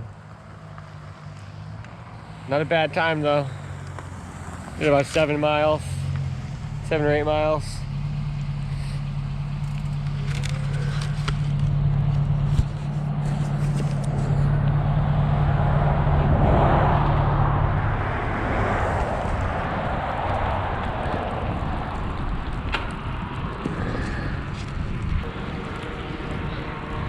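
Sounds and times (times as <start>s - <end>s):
vehicle engine humming: 0.0s - 27.0s
rushing noise: 12.4s - 27.0s.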